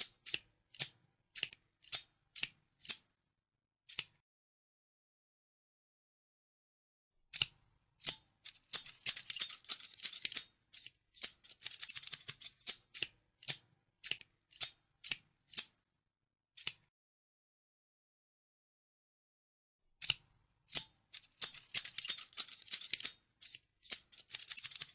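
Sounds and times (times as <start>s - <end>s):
scissors snipping: 0.0s - 3.1s, 3.9s - 4.2s, 7.3s - 15.7s, 16.6s - 16.9s, 20.0s - 24.9s.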